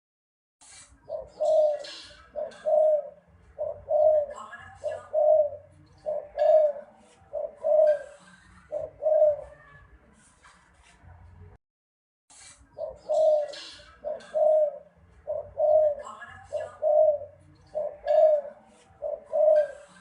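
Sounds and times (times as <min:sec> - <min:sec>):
dove cooing: 0:01.1 - 0:09.7, 0:12.8 - 0:20.0.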